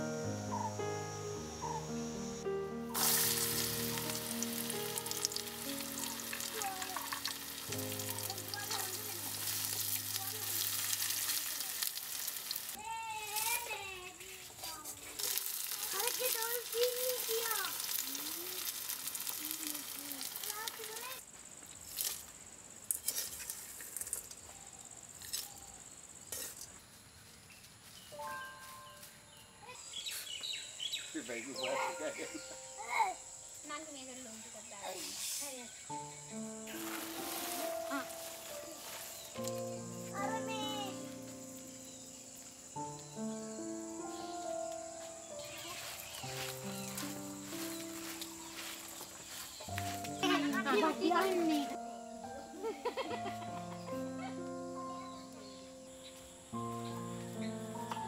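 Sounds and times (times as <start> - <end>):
background music: 0.0 - 11.6, 31.2 - 33.7, 35.9 - 58.0
high insect drone: 0.0 - 14.6, 29.0 - 58.0
seeds sizzling and crackling in oil: 3.0 - 21.2, 21.8 - 24.4, 36.6 - 43.2, 43.9 - 51.6.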